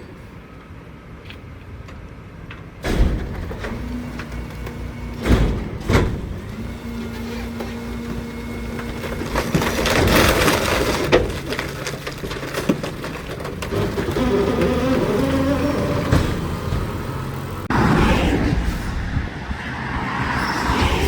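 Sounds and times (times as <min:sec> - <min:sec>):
garbage truck engine and machinery: 0:00.0 - 0:21.0.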